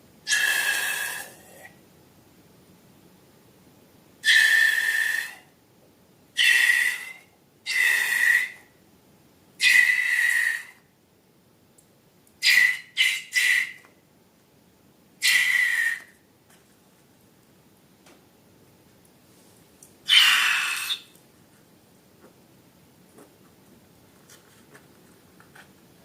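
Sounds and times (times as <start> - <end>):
air squealing out of balloon: 0.3 - 1.7, 6.4 - 8.6, 9.6 - 10.8, 12.4 - 13.8, 15.2 - 16.1, 20.1 - 21.1.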